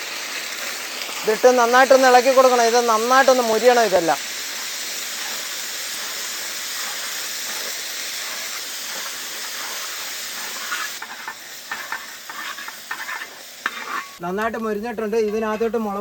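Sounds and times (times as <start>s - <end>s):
onions sizzling in hot oil: 0.0s - 14.4s
stirring scrapes against pan: 4.2s - 14.2s.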